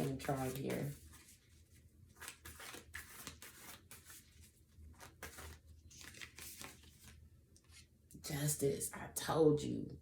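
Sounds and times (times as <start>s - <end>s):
cards rustling and sliding: 0.0s - 7.9s.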